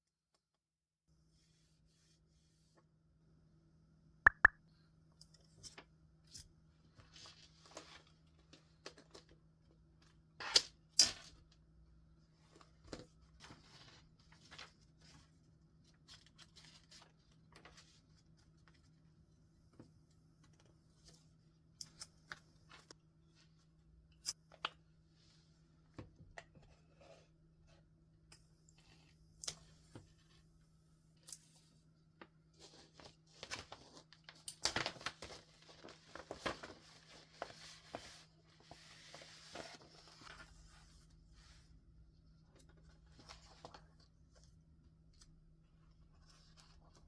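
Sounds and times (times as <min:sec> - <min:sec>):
sharp clicks: 0:04.3 - 0:04.5
stationery tapping and clicking: 0:04.3 - 0:04.5.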